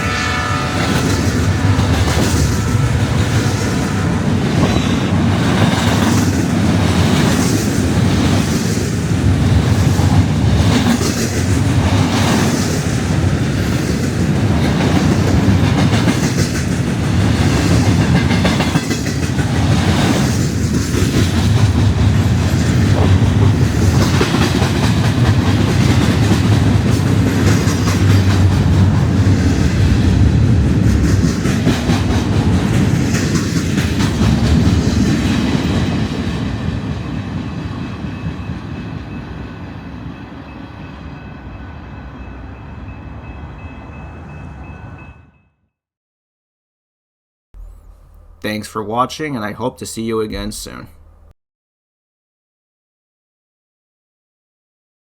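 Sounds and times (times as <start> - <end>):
train wheels rumbling on rail: 0.0 - 45.2.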